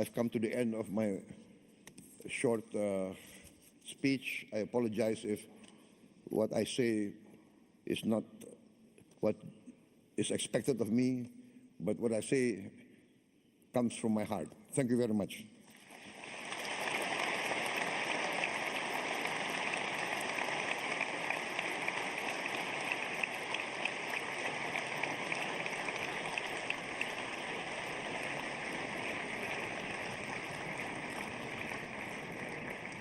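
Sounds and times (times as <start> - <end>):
audience applauding: 15.8 - 33.0.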